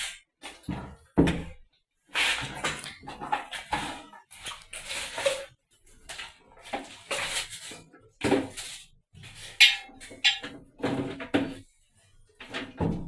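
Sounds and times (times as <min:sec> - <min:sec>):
hard items clinking and clattering: 0:02.4 - 0:11.7.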